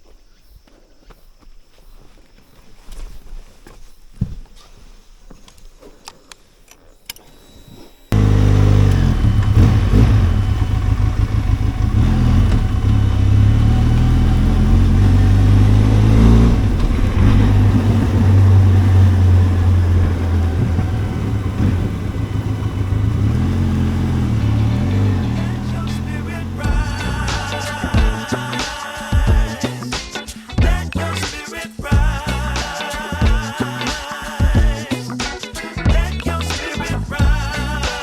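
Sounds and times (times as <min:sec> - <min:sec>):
motorcycle engine running: 0:08.2 - 0:28.3.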